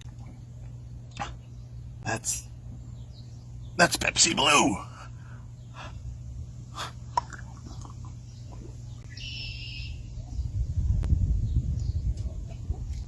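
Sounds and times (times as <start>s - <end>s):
man gulping drink: 7.0s - 8.8s.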